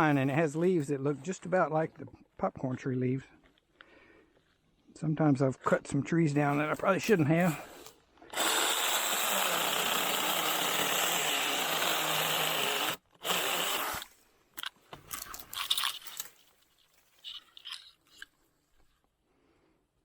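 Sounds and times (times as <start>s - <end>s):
chainsaw cutting through tree: 7.4s - 14.2s
brush crackling and snapping: 13.9s - 17.9s.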